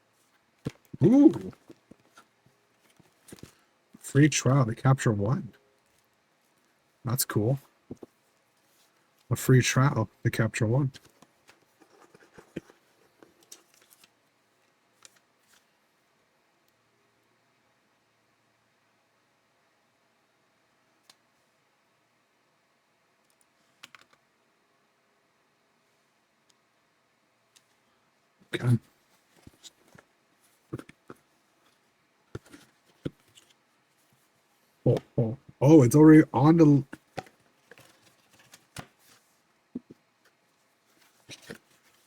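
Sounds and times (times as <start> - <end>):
faint clicks and taps: 30.7 - 34.2.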